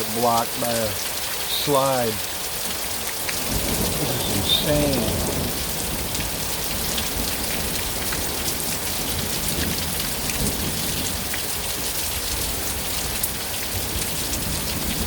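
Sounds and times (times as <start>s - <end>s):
heavy rain pouring: 0.0s - 15.0s
sharp raindrop impacts: 0.9s - 15.0s.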